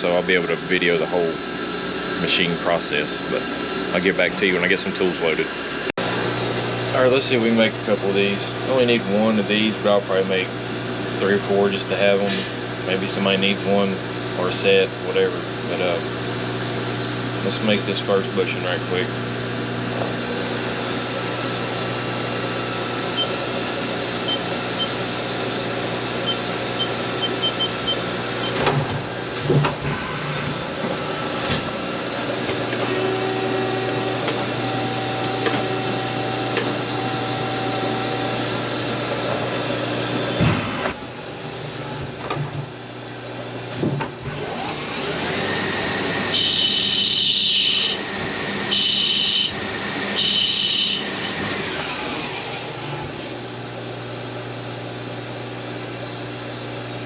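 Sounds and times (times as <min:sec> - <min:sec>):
cnc lathe running: 0:00.0 - 0:57.0
machine shop hum: 0:00.0 - 0:57.0
rising machine whine: 0:14.4 - 0:41.1, 0:44.4 - 0:53.6
high-pitched squealing bursts: 0:46.3 - 0:48.1, 0:48.7 - 0:49.6, 0:50.2 - 0:51.3.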